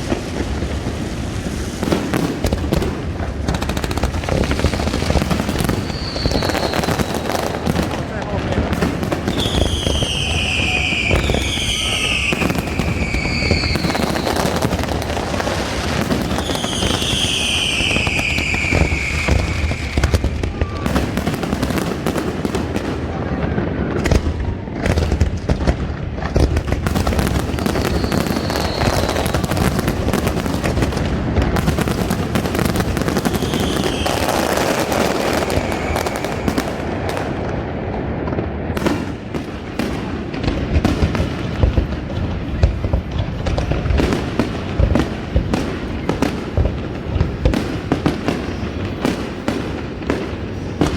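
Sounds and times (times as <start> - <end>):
fireworks bangs and crackling: 0.0 - 50.9
fireworks whistles falling in pitch: 4.5 - 8.0, 9.2 - 21.8, 27.1 - 30.4, 32.7 - 36.9.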